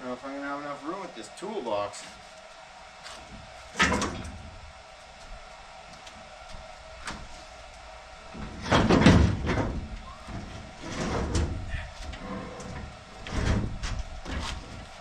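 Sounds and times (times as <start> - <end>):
heavy steel clunks and scraping: 8.4 - 14.9.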